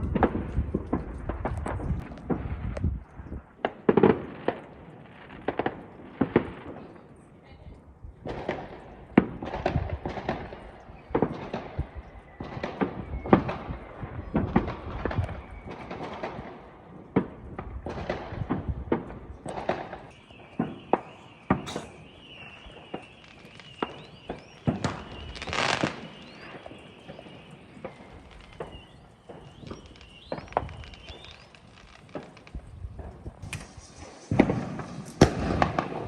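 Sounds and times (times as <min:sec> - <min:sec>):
fireworks and firecrackers banging: 0:00.0 - 0:36.0
thin high whistle: 0:20.2 - 0:31.5
short hissing burst: 0:21.7 - 0:22.0, 0:33.4 - 0:35.2.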